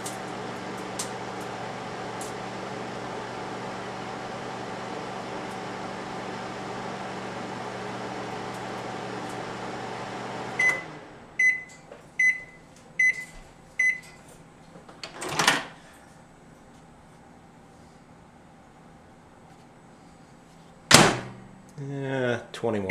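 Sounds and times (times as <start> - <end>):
microwave oven humming: 0.0 - 22.1
microwave door rattling clunk: 20.9 - 21.5.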